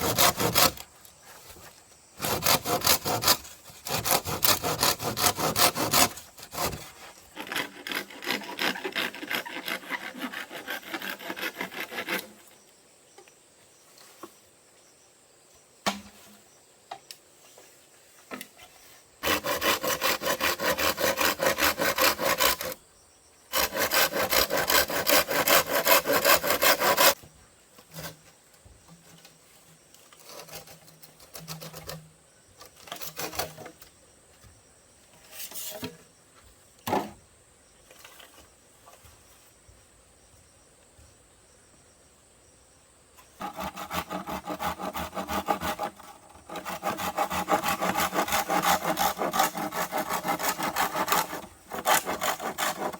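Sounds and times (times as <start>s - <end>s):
hand saw cutting bamboo: 0.0s - 0.8s, 2.2s - 12.4s, 19.2s - 22.8s, 23.5s - 27.2s, 30.2s - 32.0s, 32.7s - 33.8s, 43.4s - 52.9s
bamboo knocking and clattering: 15.8s - 17.2s.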